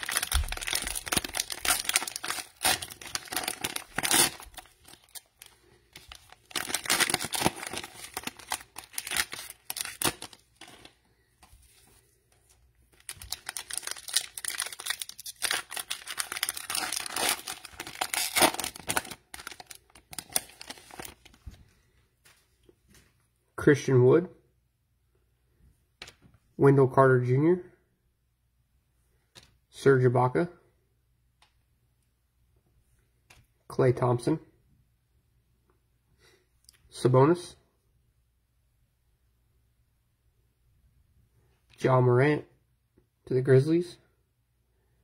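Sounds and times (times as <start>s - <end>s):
cellophane wrapper crinkling and tearing: 0.0s - 11.0s, 12.5s - 21.5s.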